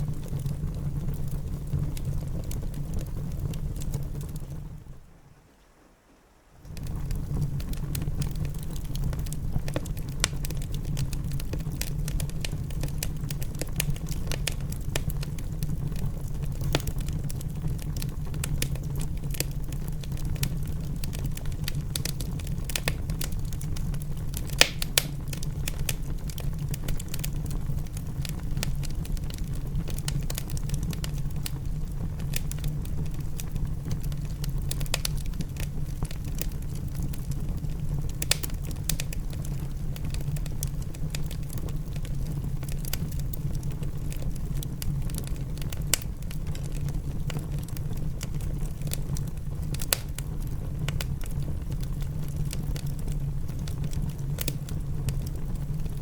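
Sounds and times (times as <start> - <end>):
low fire rumble: 0.0 - 5.4, 6.5 - 56.0
wood fire crackling: 0.0 - 5.8, 6.5 - 56.0
sharp pops from fire: 6.6 - 56.0.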